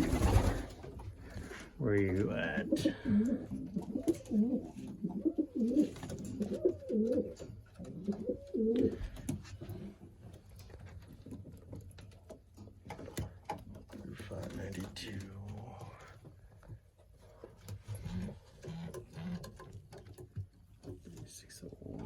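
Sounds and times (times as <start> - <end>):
pigeons cooing: 0.0 - 9.9.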